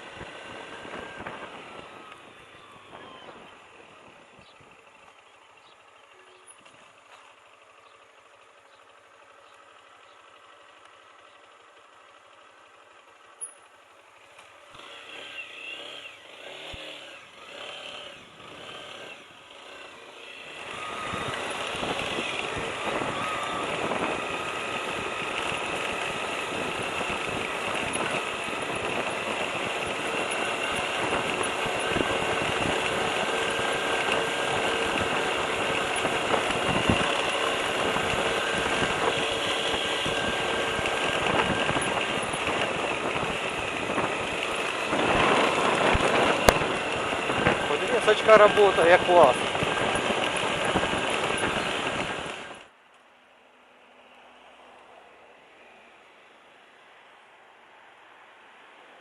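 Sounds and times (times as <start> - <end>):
motorcycle engine running: 0.0 - 52.7
motorcycle engine cranking: 13.4 - 52.7.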